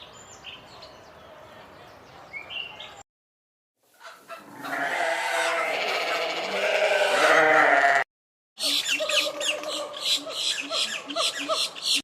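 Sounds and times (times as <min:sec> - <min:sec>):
farm animal long call: 0:04.4 - 0:08.0.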